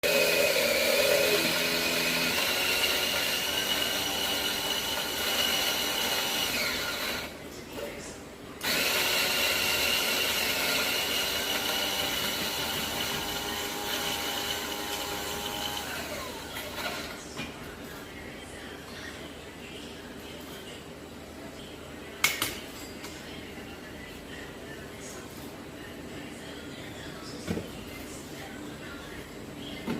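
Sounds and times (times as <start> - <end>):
electric grinder whining: 0.0 - 7.3, 8.6 - 17.1.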